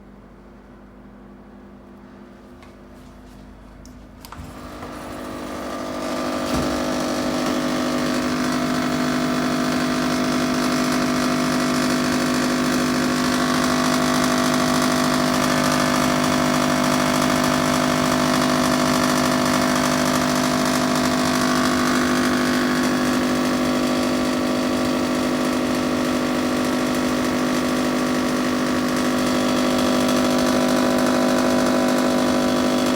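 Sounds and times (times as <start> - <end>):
air conditioner unit humming: 0.0 - 9.8.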